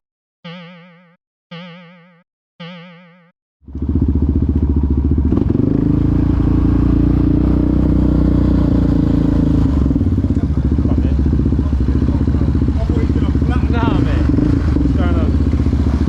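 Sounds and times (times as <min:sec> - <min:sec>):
quad bike engine running: 0:03.6 - 0:16.0.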